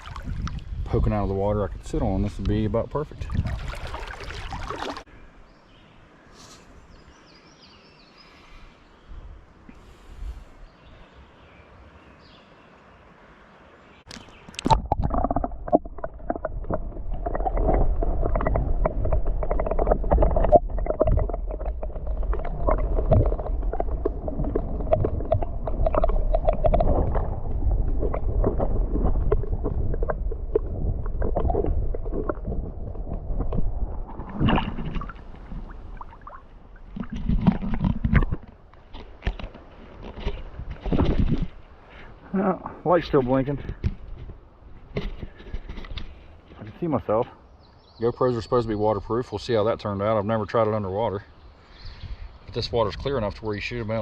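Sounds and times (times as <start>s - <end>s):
underwater rumble and gurgle: 0.0s - 5.0s, 14.6s - 42.2s
small underwater clicks and knocks: 14.1s - 41.7s, 43.4s - 46.9s.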